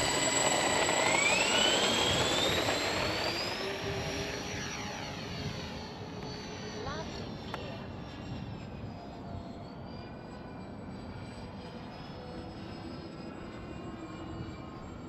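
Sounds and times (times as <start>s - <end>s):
low rush of propellers: 0.0s - 8.9s
model airplane motors whining: 0.0s - 15.0s.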